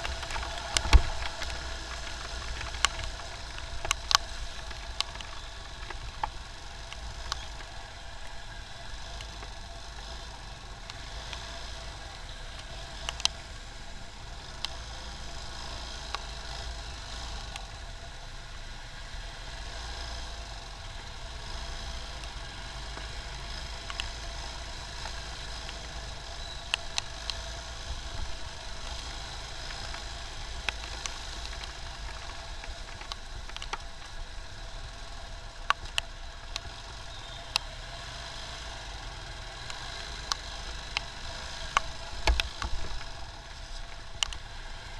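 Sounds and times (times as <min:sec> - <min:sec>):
sharp clicks and taps: 0:00.0 - 0:07.7, 0:29.7 - 0:34.3, 0:39.7 - 0:44.4
motorcycle engine and road rumble: 0:00.0 - 0:44.9.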